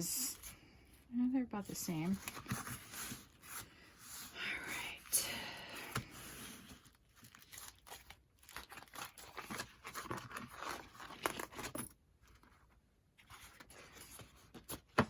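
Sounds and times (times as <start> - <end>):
paper rustling and crinkling: 2.0 - 4.4, 5.8 - 15.0.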